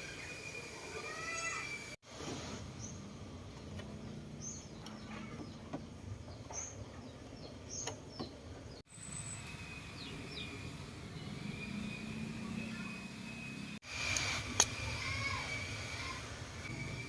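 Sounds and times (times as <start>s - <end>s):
birds chirping: 0.0s - 2.0s, 2.6s - 13.8s.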